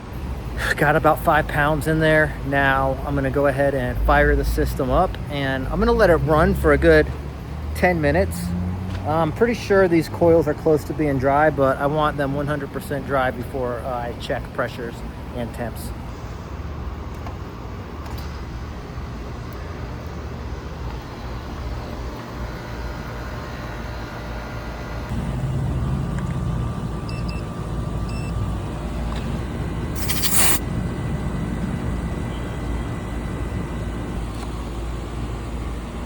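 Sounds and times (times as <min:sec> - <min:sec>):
air conditioner unit humming: 0:00.0 - 0:06.3
sharp hiss: 0:30.0 - 0:30.6.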